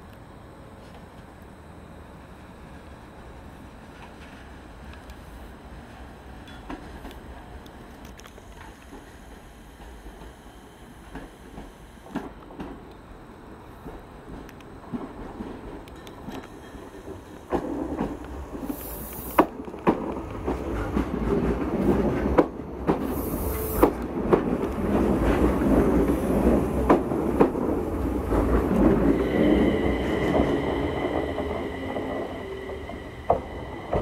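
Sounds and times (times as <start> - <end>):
train low rumble: 0.0 - 34.0
wheels clacking over rail joints: 23.8 - 34.0
high-pitched brake squeal: 29.1 - 34.0.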